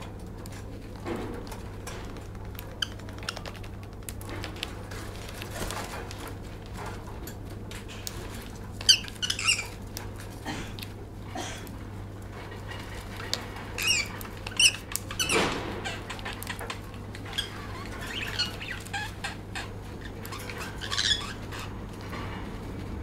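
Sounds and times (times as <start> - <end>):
bird squeaky chirps: 8.9 - 9.8, 17.3 - 21.7.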